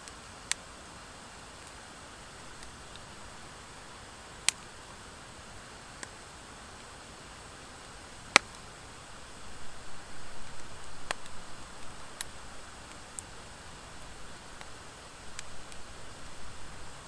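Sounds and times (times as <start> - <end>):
wood fire burning: 0.0 - 17.0.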